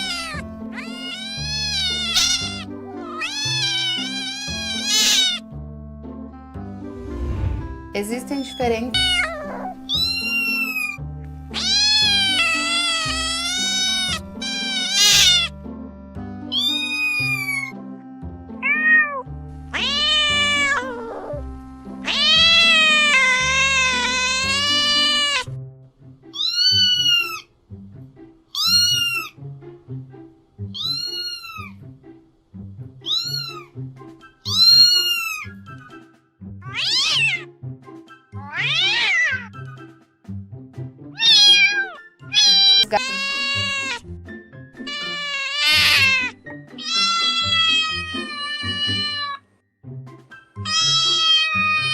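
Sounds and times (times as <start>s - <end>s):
cat meowing: 0.0s - 5.4s, 8.9s - 15.6s, 16.5s - 17.7s, 18.6s - 21.4s, 22.0s - 25.5s, 26.3s - 27.5s, 28.5s - 29.4s, 30.7s - 31.8s, 33.0s - 33.7s, 34.4s - 35.6s, 36.6s - 37.5s, 38.4s - 39.5s, 41.2s - 44.0s, 44.8s - 49.4s, 50.6s - 51.9s
background music: 0.0s - 51.9s.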